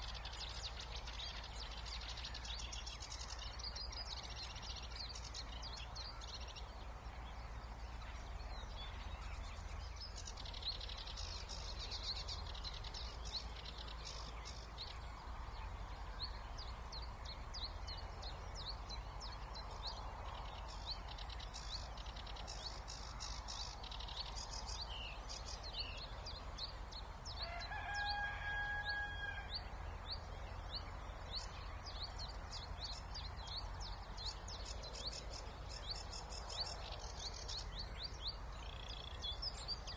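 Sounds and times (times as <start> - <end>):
songbird chorus chirps and trills: 0.0 - 39.9.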